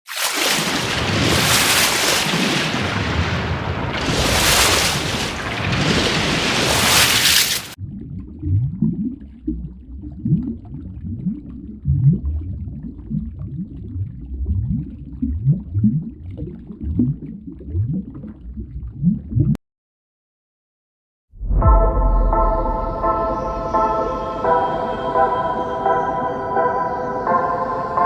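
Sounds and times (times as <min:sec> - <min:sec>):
low water gurgling: 0:07.8 - 0:19.6
loud rush of noise: 0:21.4 - 0:25.3.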